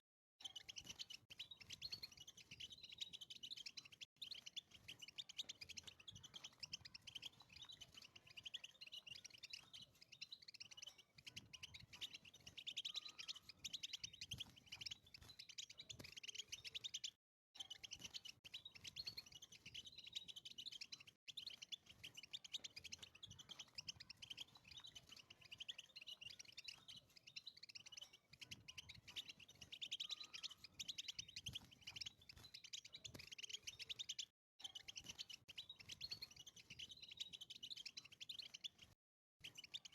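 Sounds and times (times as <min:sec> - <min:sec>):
goldfinch twittering song: 0:00.4 - 0:39.9.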